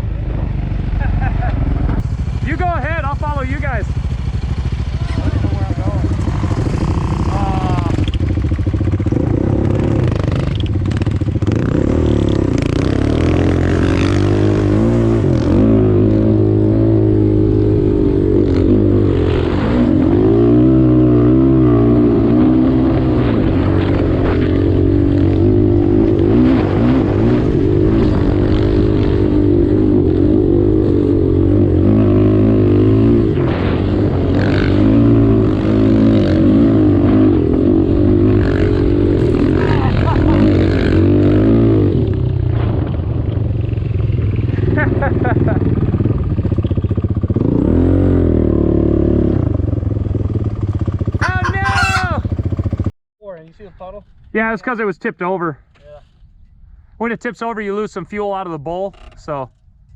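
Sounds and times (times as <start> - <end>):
single-cylinder engine running hard: 49.8 - 52.9.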